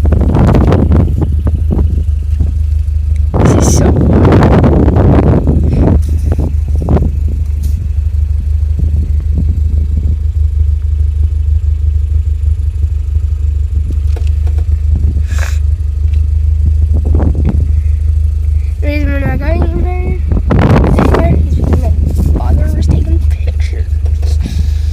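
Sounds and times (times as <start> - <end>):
vehicle rumbling off-road: 0.0 - 24.9
knocks and rattles: 13.9 - 15.0, 20.4 - 24.5
brief hiss: 15.3 - 15.6.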